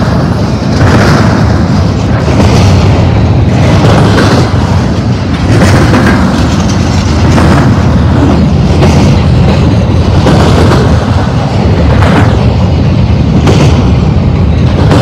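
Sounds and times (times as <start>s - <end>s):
rail clacks: 0.0s - 15.0s
train wheels rumbling on rail: 0.0s - 15.0s.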